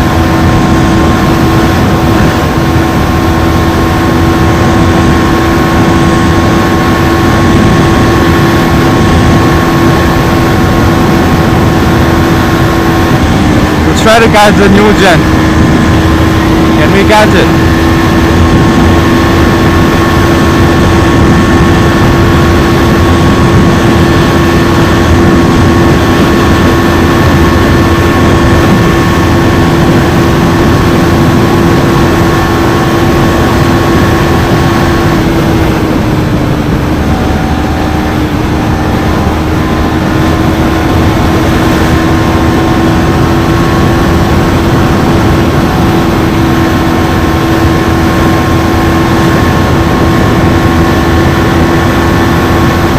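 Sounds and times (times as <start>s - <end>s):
motorcycle engine at high revs: 0.0s - 52.9s
wind rush over microphone: 0.0s - 52.9s.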